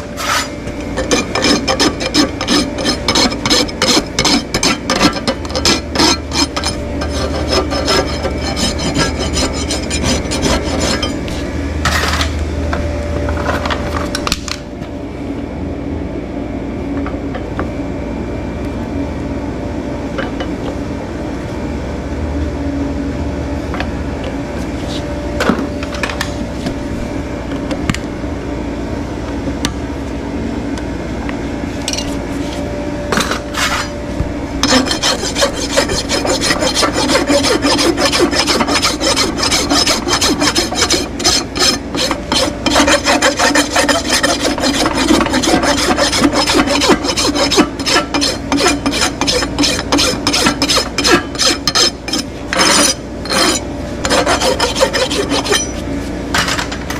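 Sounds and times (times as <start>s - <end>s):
hoof rasp filing hoof: 0.1s - 12.2s, 34.6s - 55.9s.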